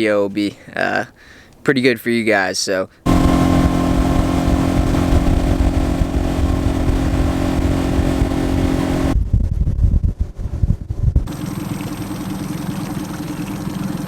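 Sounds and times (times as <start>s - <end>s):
engine hum: 3.1s - 9.2s
low uneven engine rumble: 3.1s - 9.2s.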